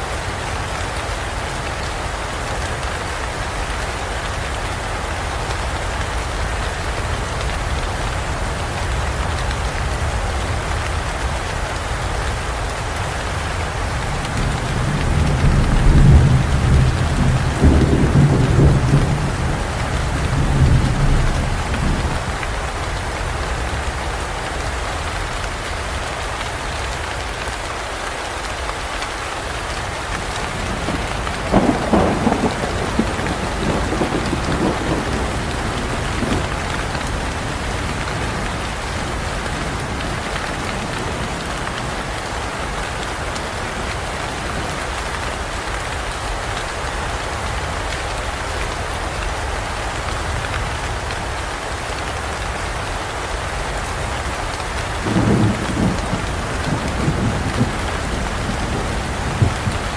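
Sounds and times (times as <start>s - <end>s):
steady rain: 0.0s - 59.9s
thunder rumbling: 13.6s - 22.5s, 30.2s - 42.1s, 54.7s - 59.9s
sharp thunderclap: 14.4s - 22.2s, 30.7s - 37.2s, 55.0s - 59.9s.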